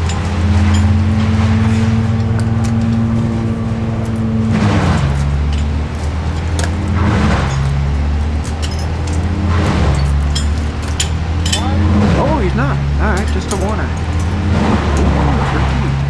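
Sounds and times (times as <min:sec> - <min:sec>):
large engine running: 0:00.0 - 0:16.0
rushing noise: 0:00.0 - 0:16.0.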